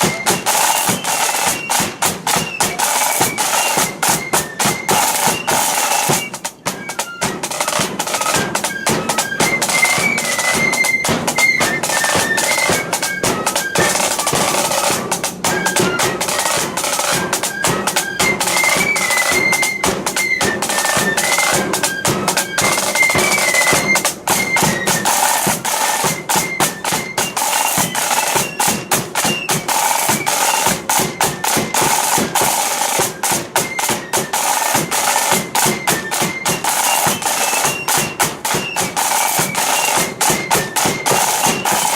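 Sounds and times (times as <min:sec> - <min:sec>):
flutes playing melody: 0:00.0 - 0:41.9
heavy drum beats: 0:00.0 - 0:41.9
rattling snare drums: 0:00.0 - 0:41.9.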